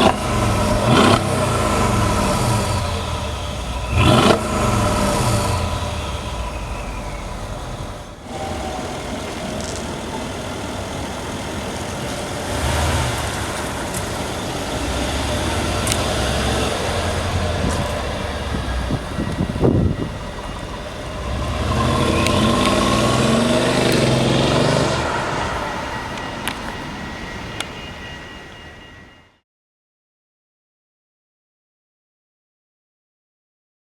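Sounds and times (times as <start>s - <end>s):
car engine revving and accelerating: 0.0s - 26.8s.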